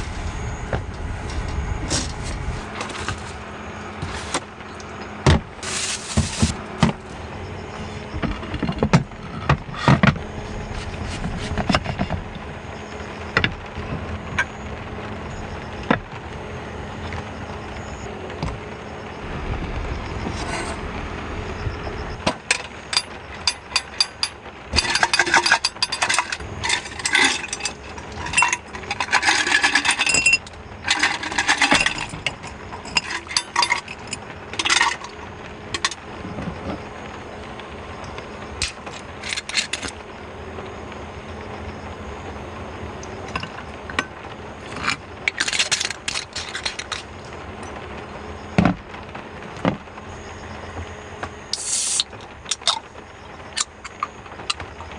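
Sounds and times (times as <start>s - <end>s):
rain hissing: 0.0s - 4.6s, 5.5s - 8.0s, 10.2s - 54.9s
objects rustling and scraping: 0.0s - 7.1s, 7.9s - 12.4s, 19.5s - 21.0s, 22.2s - 36.9s, 38.6s - 40.0s, 43.2s - 47.8s.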